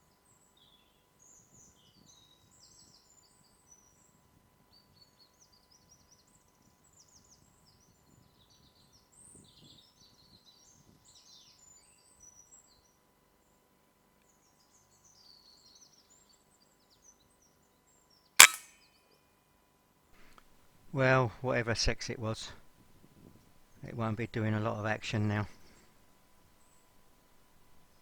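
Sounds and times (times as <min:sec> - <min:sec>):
air rifle shot: 0:18.4 - 0:18.6.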